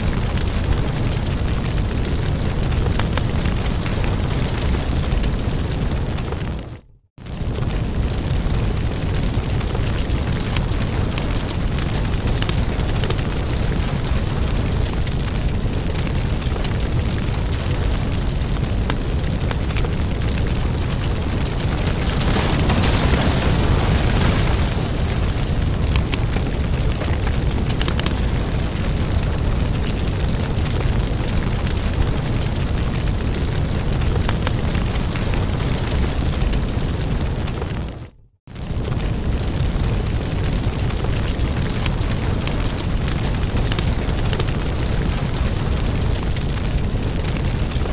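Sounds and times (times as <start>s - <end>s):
fire crackling and popping: 0.0s - 47.9s
wood fire roaring: 0.0s - 47.9s
fire hissing rush: 7.3s - 31.0s.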